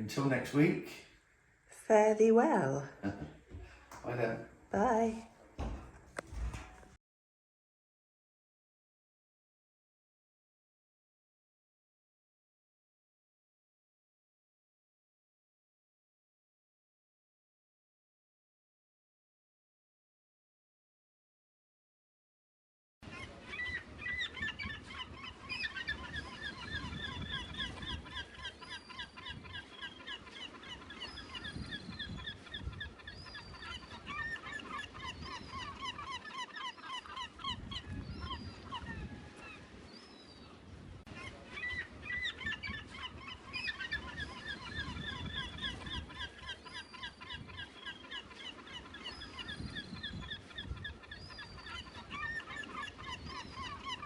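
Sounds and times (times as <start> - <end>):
flock of birds calling: 23.0 - 54.0.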